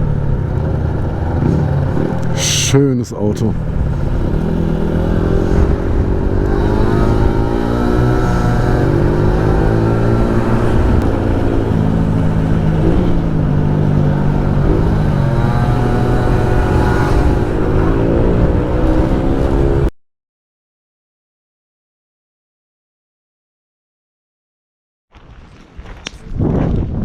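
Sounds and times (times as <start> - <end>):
motorbike engine revving: 0.0 - 19.9.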